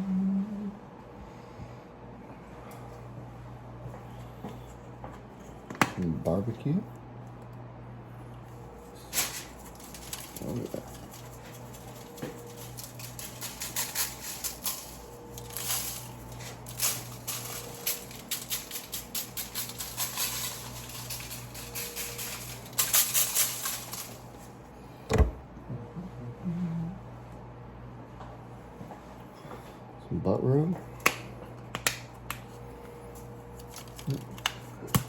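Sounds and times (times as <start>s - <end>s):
seasoning shaker rattling: 9.0s - 24.4s.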